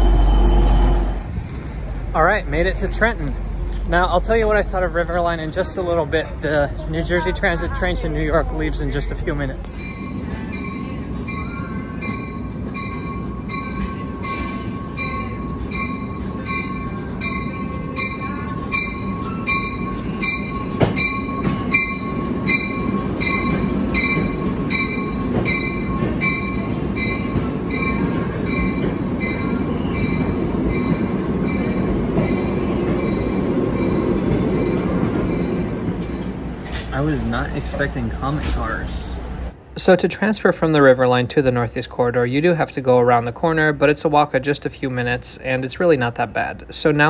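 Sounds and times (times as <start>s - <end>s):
rumble of rolling train coaches: 0.0s - 47.0s
train bell ringing: 7.1s - 36.3s.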